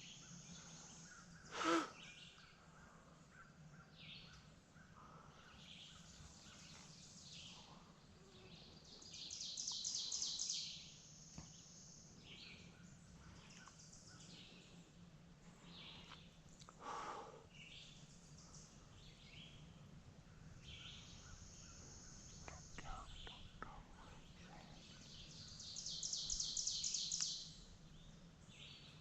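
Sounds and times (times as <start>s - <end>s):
songbirds singing: 0.0s - 29.0s
short low bird call: 1.5s - 2.1s.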